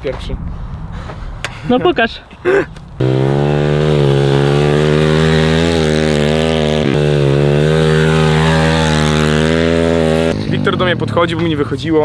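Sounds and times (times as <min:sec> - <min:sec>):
motorbike engine running hard: 0:03.0 - 0:11.6.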